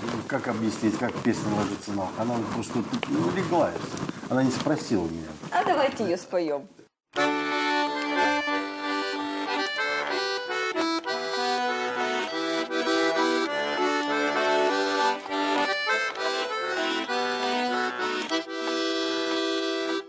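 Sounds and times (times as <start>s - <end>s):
accordion playing: 7.1s - 20.0s.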